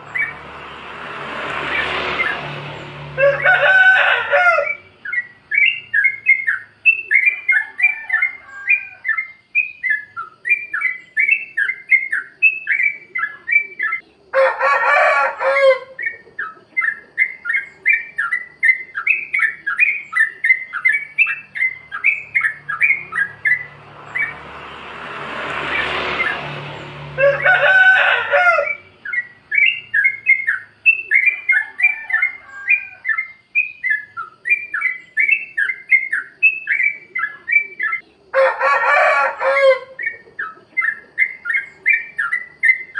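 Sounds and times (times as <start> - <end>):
bulbul singing: 0.0 - 14.3, 15.8 - 38.3, 39.5 - 42.9
harsh bird call: 0.0 - 42.9
rush of noise: 22.2 - 28.8.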